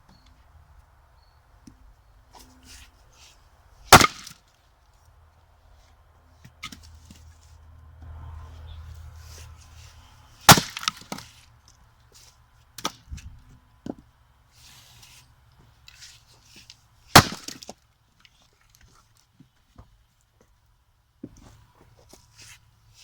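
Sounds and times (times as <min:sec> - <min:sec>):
axe blows into a log: 0:03.9 - 0:04.4, 0:10.5 - 0:11.1, 0:17.1 - 0:17.6.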